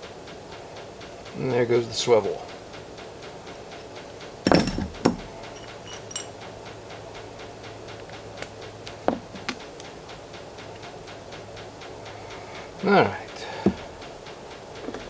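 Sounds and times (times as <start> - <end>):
faint even ticking: 0.2 - 15.0
faint metallic ring: 4.5 - 6.4
metal parts clinking on workbench: 4.5 - 6.4.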